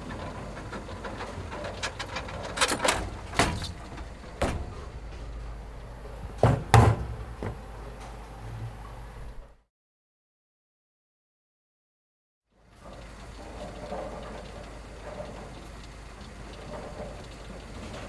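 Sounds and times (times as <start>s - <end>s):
steady low rumble: 3.2s - 6.4s.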